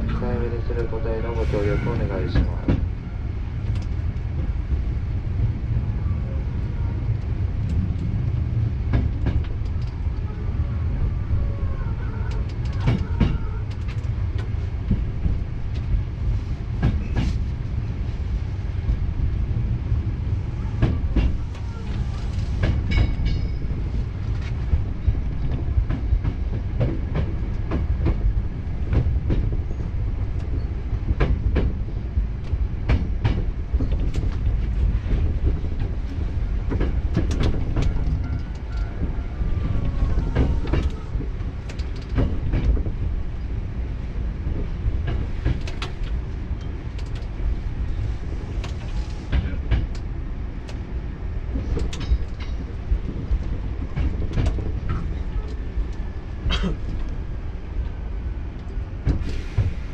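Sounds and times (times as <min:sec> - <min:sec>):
low rumble of wheels on rail: 0:00.0 - 0:59.9
wheels clicking over rail joints: 0:39.7 - 0:43.0.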